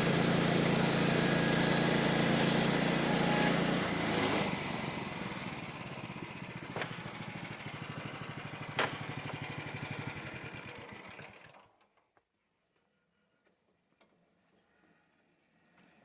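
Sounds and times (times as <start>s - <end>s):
small engine running down: 0.0s - 11.9s.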